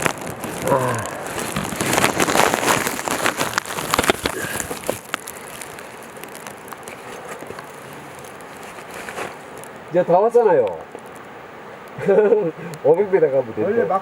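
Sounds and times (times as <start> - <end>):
footsteps on rocky trail: 0.0 - 9.6
clothing rustle: 0.0 - 9.8
faint hiss: 0.0 - 14.0.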